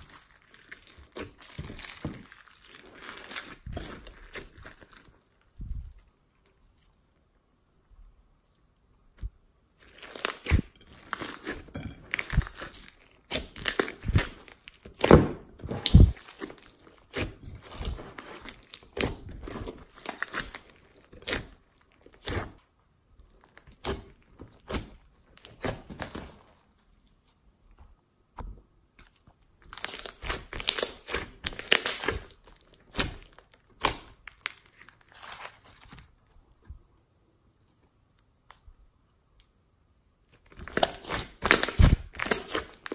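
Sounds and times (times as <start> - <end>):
slime squishing and crackling: 0.0 - 6.9, 9.7 - 27.2, 28.9 - 36.3, 40.2 - 42.9.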